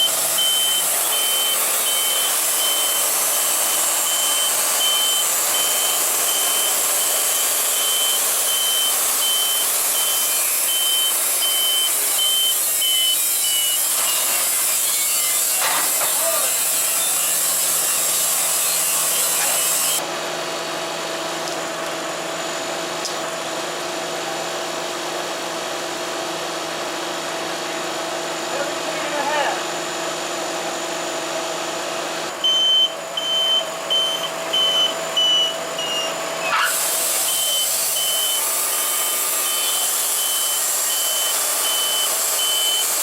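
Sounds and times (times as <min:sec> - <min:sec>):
reversing alarm beeping: 0:00.0 - 0:13.9, 0:32.4 - 0:43.0
equipment running noise: 0:00.0 - 0:43.0.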